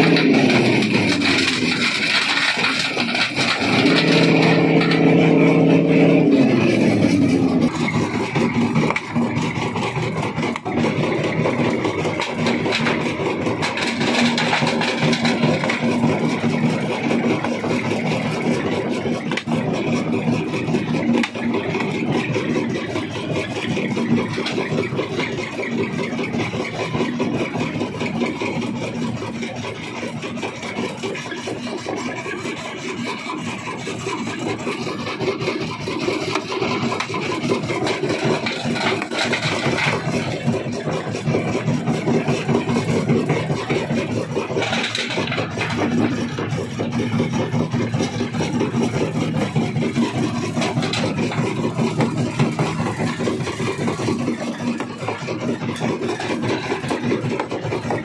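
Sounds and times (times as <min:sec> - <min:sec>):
rock crusher humming: 0:00.0 - 0:58.0.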